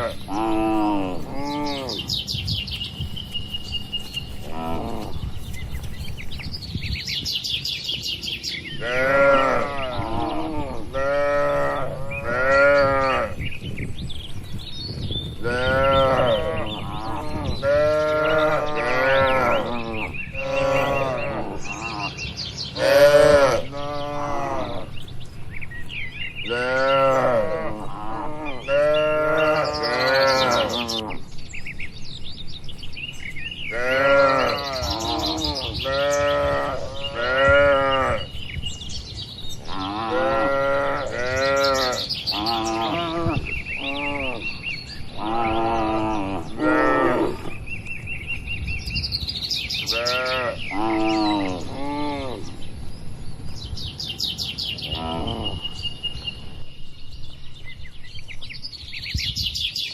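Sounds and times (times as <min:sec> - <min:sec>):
cattle mooing: 0:00.0 - 0:02.1, 0:15.4 - 0:22.2, 0:26.5 - 0:31.2.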